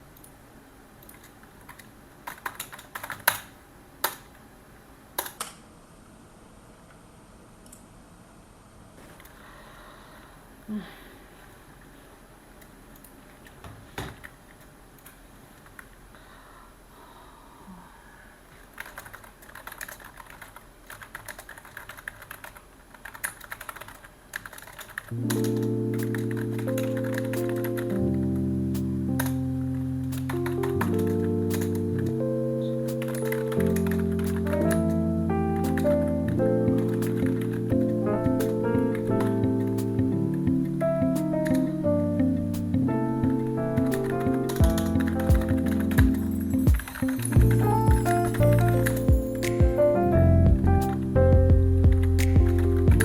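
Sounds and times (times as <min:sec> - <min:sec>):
keyboard typing: 0:01.0 - 0:04.3, 0:18.7 - 0:28.1, 0:30.1 - 0:32.2, 0:32.9 - 0:41.8, 0:43.2 - 0:50.1, 0:51.9 - 0:53.0.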